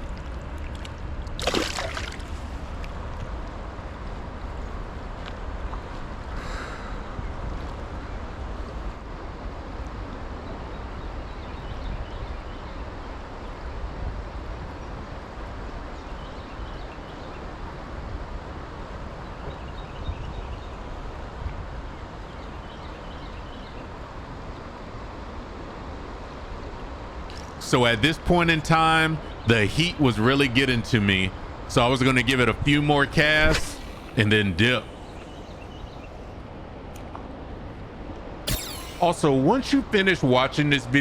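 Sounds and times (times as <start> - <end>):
river water rushing: 1.4 - 2.8.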